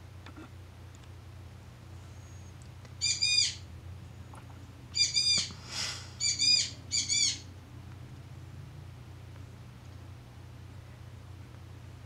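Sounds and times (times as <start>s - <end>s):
bird calling: 2.2s - 3.7s, 4.3s - 7.5s.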